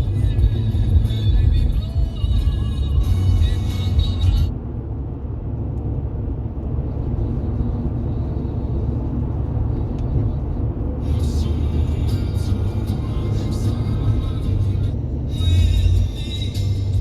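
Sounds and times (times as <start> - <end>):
music: 0.0 - 4.5, 11.2 - 17.0
car driving on motorway: 0.0 - 17.0.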